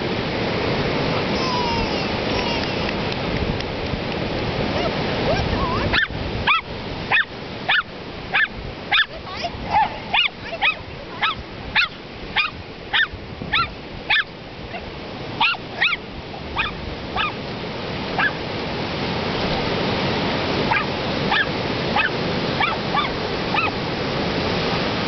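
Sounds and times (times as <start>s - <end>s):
surf washing: 0.0s - 25.0s
dog yipping: 4.8s - 16.0s, 16.6s - 17.4s, 18.2s - 18.4s, 20.7s - 23.8s.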